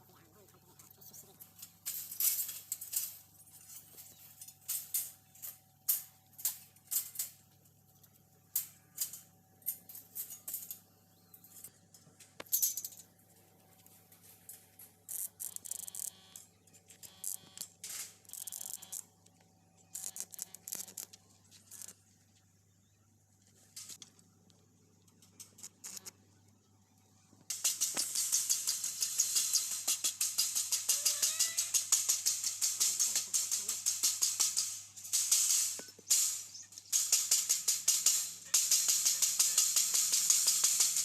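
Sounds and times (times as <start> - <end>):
faint steady hum: 0.0 - 41.0
metallic clinking and rattling: 1.3 - 19.0, 27.5 - 41.0.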